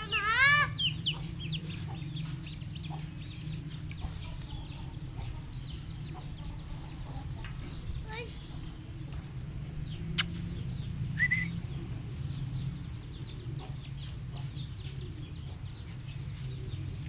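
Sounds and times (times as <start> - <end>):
birds chirping: 0.0 - 17.0
steady low hum: 0.0 - 17.0
sharp click: 10.2 - 10.5.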